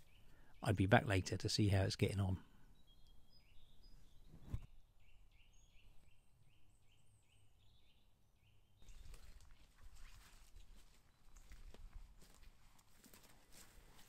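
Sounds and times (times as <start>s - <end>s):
footsteps crunching dry leaves: 8.8s - 14.0s.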